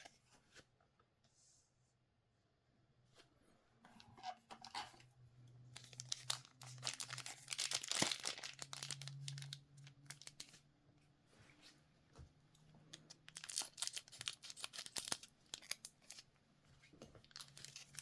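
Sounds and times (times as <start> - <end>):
card pack wrapper tearing and crinkling: 5.8 - 10.6, 13.0 - 16.2, 17.3 - 18.0.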